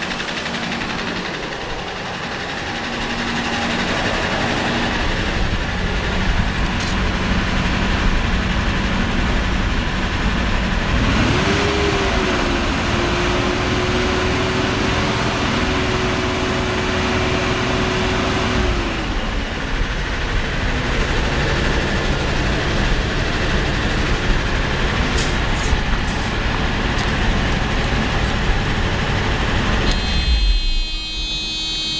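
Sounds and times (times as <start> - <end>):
car engine revving and idling: 0.0 - 31.1.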